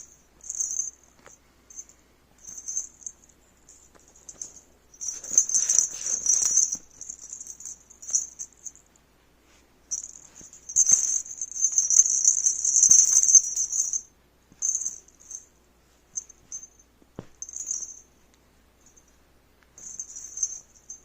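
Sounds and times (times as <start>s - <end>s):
toy rattling and rustling: 0.0s - 8.9s, 9.9s - 15.5s, 17.4s - 18.1s, 19.8s - 21.0s.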